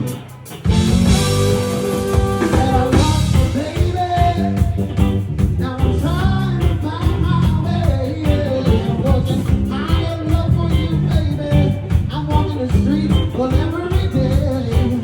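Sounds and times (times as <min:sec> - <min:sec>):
bending melody line: 0:00.0 - 0:05.2
rock band playing: 0:00.0 - 0:15.0.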